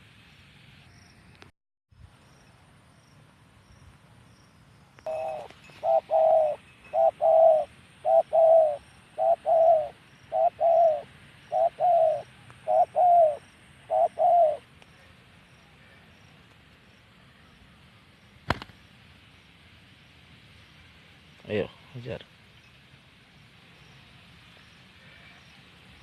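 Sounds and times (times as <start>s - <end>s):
dove cooing: 5.1s - 14.6s.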